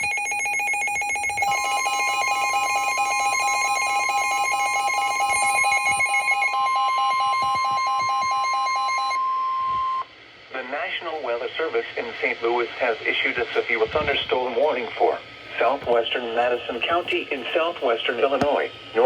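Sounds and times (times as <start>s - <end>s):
steady high warning tone: 0.0s - 12.4s.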